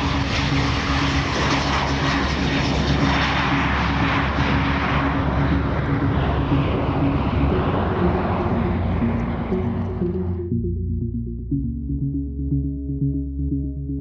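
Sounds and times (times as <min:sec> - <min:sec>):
jet aircraft engines rushing: 0:00.0 - 0:10.5.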